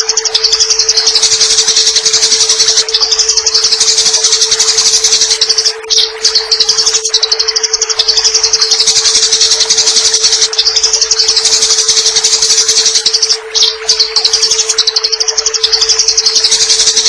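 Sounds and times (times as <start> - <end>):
sparrows chirping: 0.0 - 17.0
steady low hum: 0.0 - 17.0.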